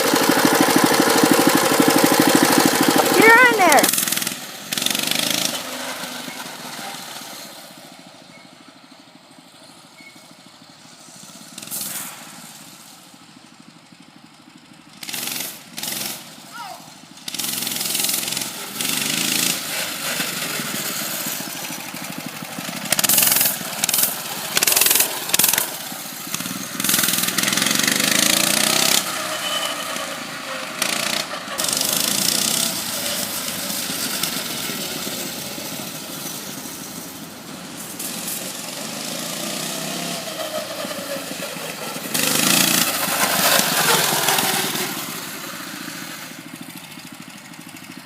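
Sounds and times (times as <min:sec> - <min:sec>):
loud engine bursts: 0:00.0 - 0:06.8, 0:17.3 - 0:37.1, 0:37.7 - 0:46.4
small engine revving: 0:00.0 - 0:07.6, 0:15.0 - 0:16.4, 0:17.2 - 0:47.1.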